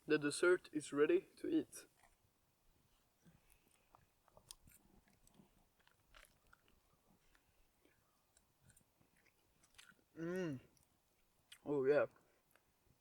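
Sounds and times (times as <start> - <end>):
man chewing: 3.3 - 11.6.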